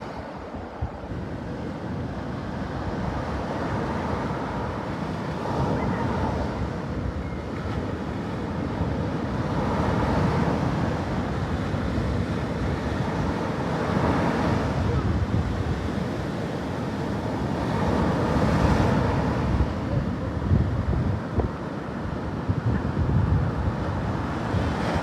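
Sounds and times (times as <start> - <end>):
sea waves washing ashore: 0.0 - 25.0
wind buffeting microphone: 0.0 - 25.0.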